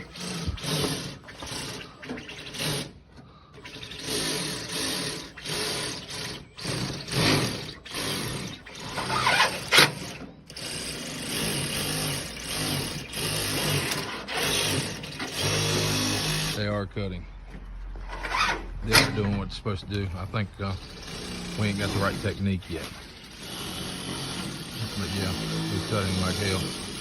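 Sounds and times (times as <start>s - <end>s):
power shears cutting roofing: 0.0s - 16.7s, 18.3s - 27.0s.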